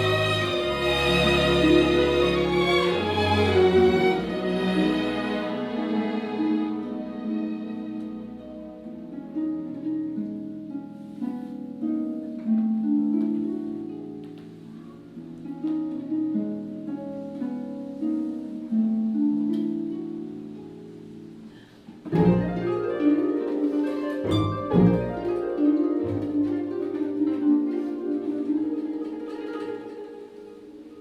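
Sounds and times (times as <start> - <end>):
viola long low notes: 0.0 - 8.8
plucked harp notes: 0.0 - 31.0.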